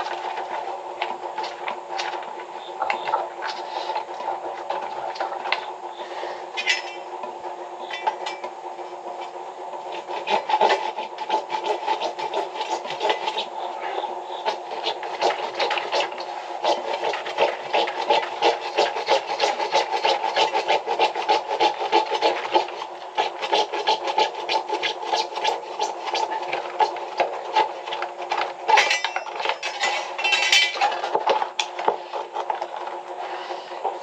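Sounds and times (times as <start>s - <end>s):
rapid rhythmic rasping: 9.1s - 29.1s.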